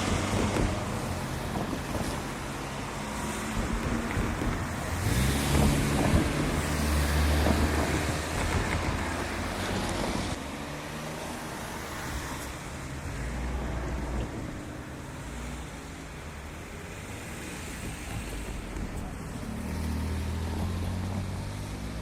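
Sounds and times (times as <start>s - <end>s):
wind on microphone: 0.0s - 2.6s, 3.2s - 10.4s
locomotive engine droning: 0.0s - 22.0s.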